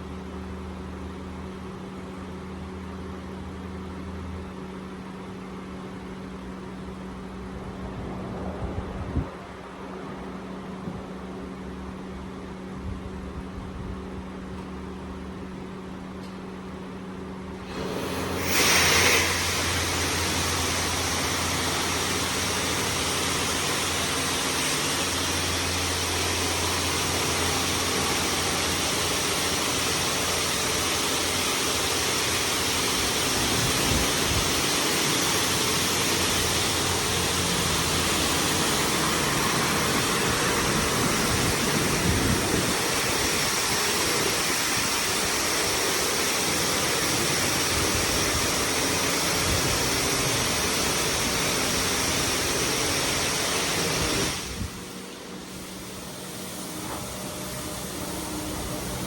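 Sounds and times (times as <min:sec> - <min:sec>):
water jets spraying car: 0:17.6 - 0:59.0.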